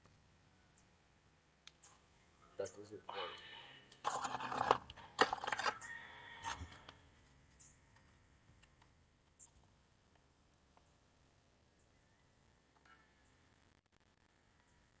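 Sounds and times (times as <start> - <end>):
fire crackling faintly: 6.6 - 15.0.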